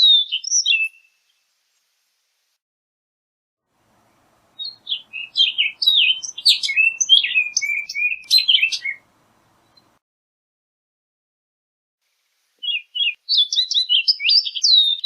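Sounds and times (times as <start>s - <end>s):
bird singing: 0.0s - 1.2s, 3.8s - 10.0s, 12.6s - 15.0s.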